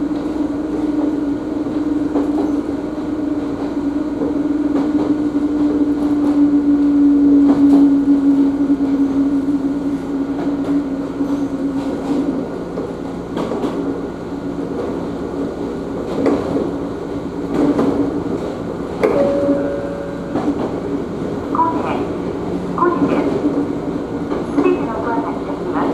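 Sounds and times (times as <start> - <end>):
electric train hum: 0.0 - 25.9
wheels clacking over rail joints: 16.0 - 21.5.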